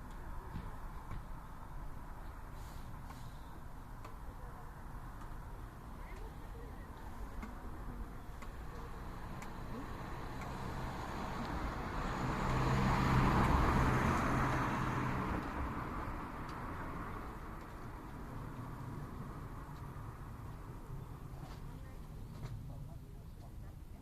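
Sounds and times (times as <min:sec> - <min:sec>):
car passing by: 0:08.6 - 0:21.6.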